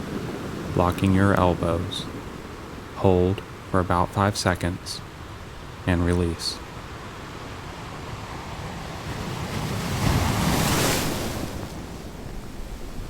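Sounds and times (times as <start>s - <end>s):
ocean wave crashing: 8.2s - 13.0s.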